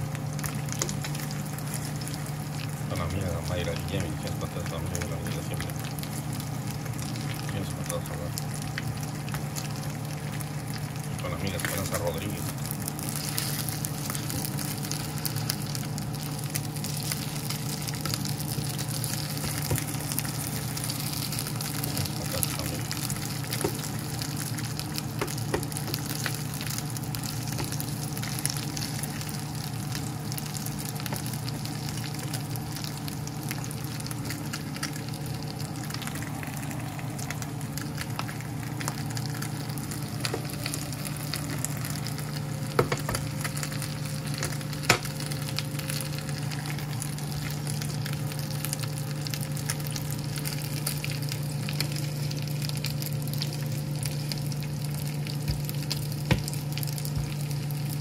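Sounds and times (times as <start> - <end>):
chicken sizzling in a pan: 0.0 - 58.0.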